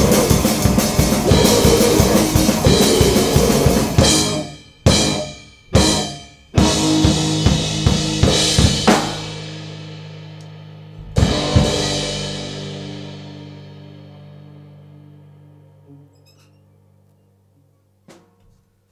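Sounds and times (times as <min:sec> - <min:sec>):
distorted guitar: 0:00.0 - 0:09.4, 0:11.0 - 0:17.2
cymbal crashes: 0:00.0 - 0:10.2
drum kit: 0:00.0 - 0:15.3.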